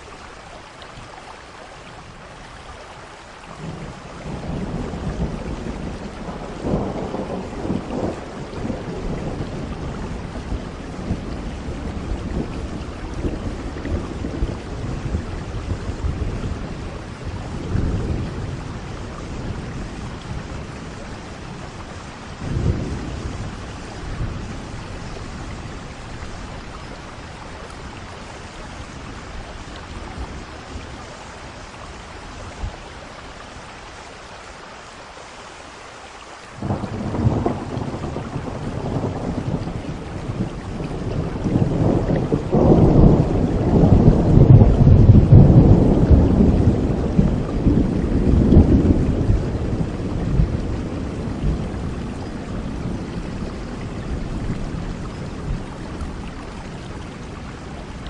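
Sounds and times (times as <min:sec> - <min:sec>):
steady rain: 0:00.0 - 0:58.0
thunder rumbling: 0:03.6 - 0:31.7, 0:36.6 - 0:58.0
thunderclap: 0:36.6 - 0:55.7.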